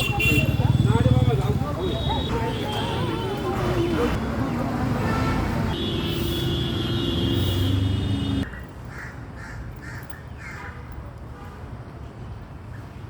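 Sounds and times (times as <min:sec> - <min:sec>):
loud vehicle noise: 0:00.0 - 0:10.2
crows cawing: 0:08.9 - 0:10.6.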